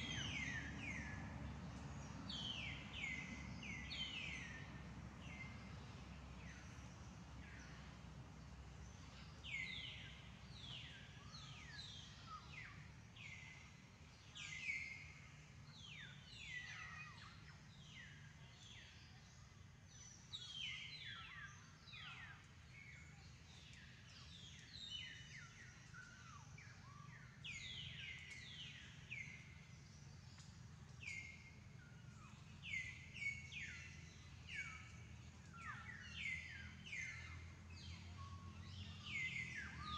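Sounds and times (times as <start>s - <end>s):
faint bird chirping: 0.0s - 39.9s.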